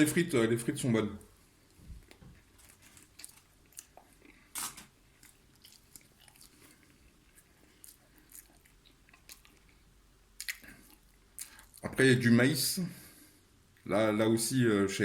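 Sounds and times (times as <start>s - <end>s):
person chewing food: 1.5s - 11.9s.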